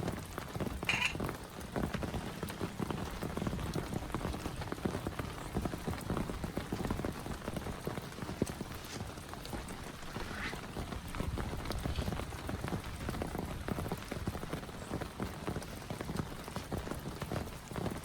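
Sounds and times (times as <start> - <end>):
heavy rain falling: 0.0 - 18.0
raindrops tapping close by: 0.0 - 18.0.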